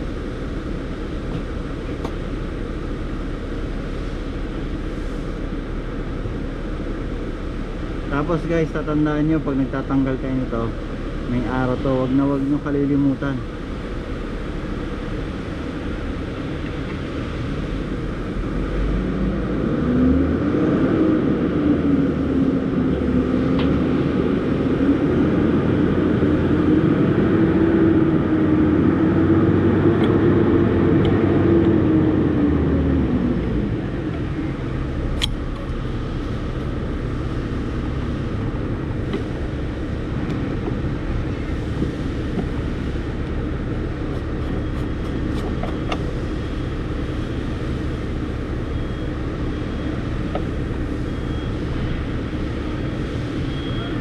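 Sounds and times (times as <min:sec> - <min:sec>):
vehicle engine running: 0:00.0 - 0:54.0
tool or metal clicks: 0:35.2 - 0:35.4.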